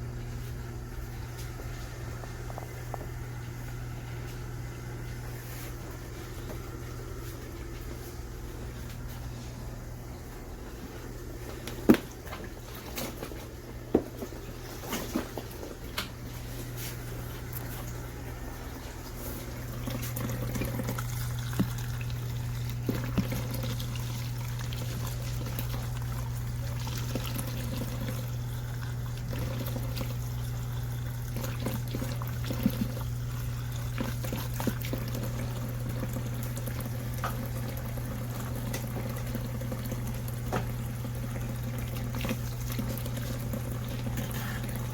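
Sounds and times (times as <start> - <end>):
motor hum: 0.0 - 44.9
water splashing in washing machine: 10.2 - 44.9.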